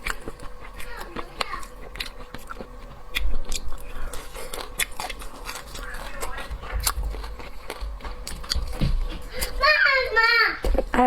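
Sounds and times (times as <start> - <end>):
person chewing crunchy food: 0.0 - 11.0.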